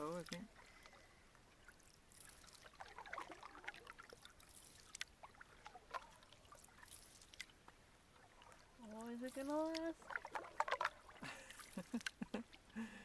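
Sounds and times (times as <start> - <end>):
canoe paddles dipping in water: 0.0 - 13.0
water drips and gurgles: 0.0 - 13.0.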